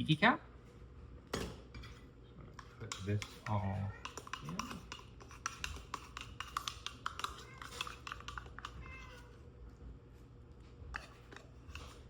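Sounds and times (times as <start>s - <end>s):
cat meowing: 8.6s - 9.3s.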